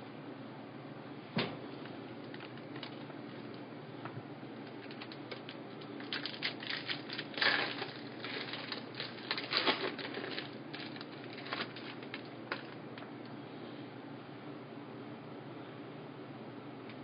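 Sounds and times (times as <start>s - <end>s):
trading cards and foil wrappers crinkling: 2.2s - 3.6s, 4.6s - 13.1s.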